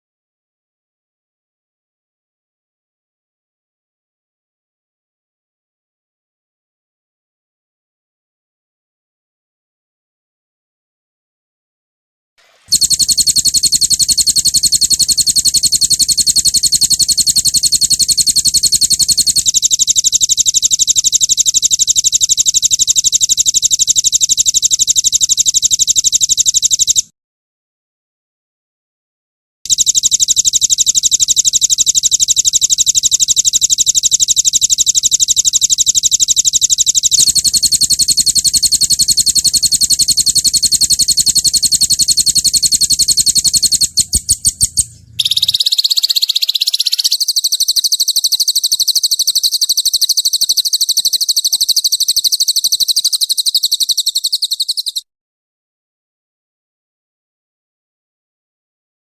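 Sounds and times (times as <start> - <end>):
songbird high-pitched trills: 30.6 - 55.0.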